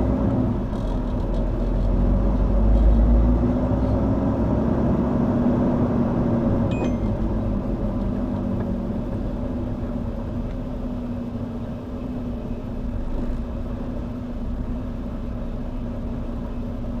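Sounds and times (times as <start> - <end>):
brief high squeak: 6.7 - 7.2.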